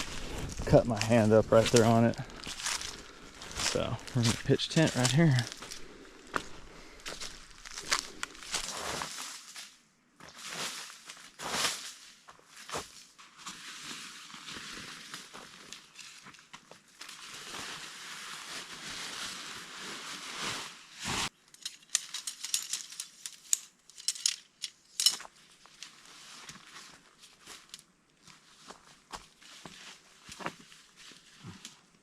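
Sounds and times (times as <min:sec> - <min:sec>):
tent fabric rustling: 0:17.2 - 0:21.4
tent gear clicking and clinking: 0:21.3 - 0:26.0.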